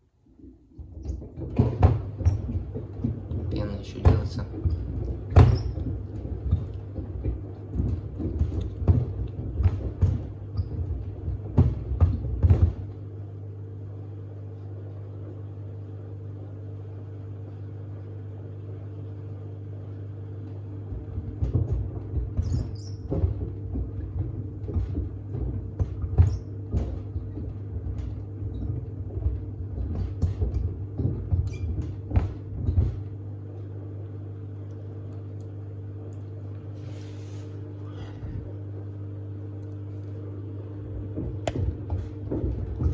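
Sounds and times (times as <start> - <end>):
washer hum: 0.0 - 42.9
shoes knocking in washer drum: 0.3 - 13.1, 20.5 - 33.3, 39.9 - 42.9.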